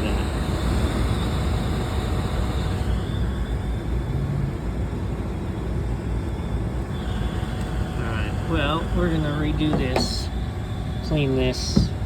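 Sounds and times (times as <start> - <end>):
air handler blower running: 0.0 - 4.3, 4.9 - 12.0.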